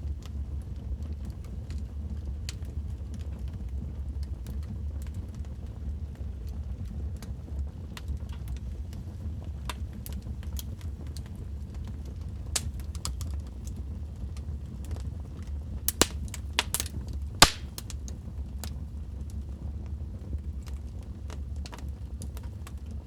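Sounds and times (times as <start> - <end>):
wood fire crackling: 4.2 - 23.0.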